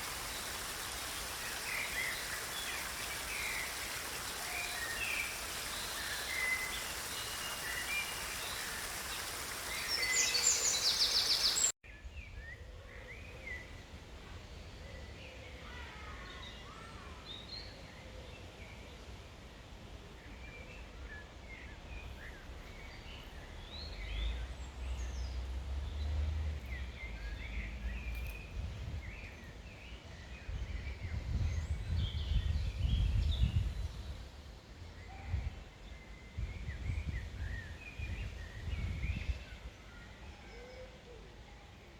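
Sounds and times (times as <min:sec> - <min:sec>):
wild birds chirping: 0:00.0 - 0:11.7.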